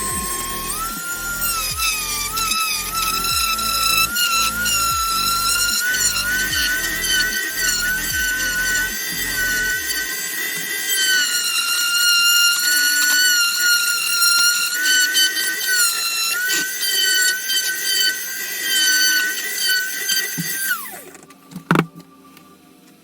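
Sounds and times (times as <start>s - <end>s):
rotary tool grinding plastic: 0.0s - 22.1s.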